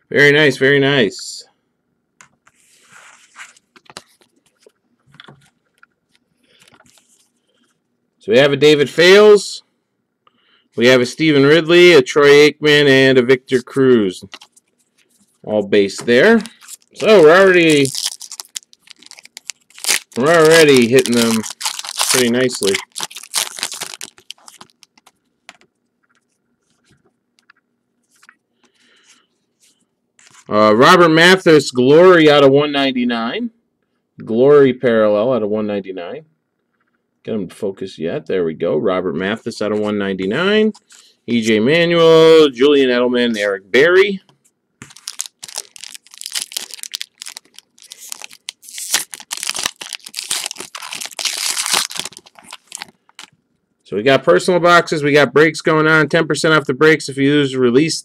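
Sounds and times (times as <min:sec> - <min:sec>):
foil wrapper crinkling: 0:14.2 - 0:15.3, 0:16.1 - 0:25.2, 0:44.8 - 0:53.3.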